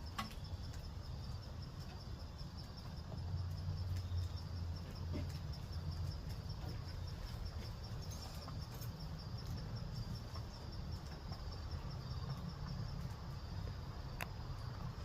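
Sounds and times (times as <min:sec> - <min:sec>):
constant low rumble: 0:00.0 - 0:15.0
crickets chirping: 0:00.0 - 0:15.0.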